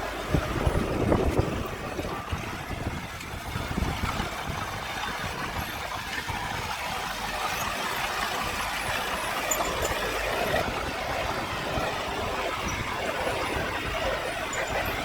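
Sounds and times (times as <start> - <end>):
heavy machinery engine running: 0.0 - 15.0.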